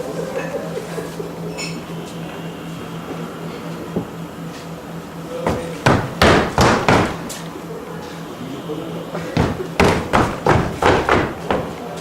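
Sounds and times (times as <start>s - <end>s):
low film soundtrack hum: 0.0s - 12.0s
loud thumps and bangs: 5.5s - 7.4s, 9.3s - 11.7s.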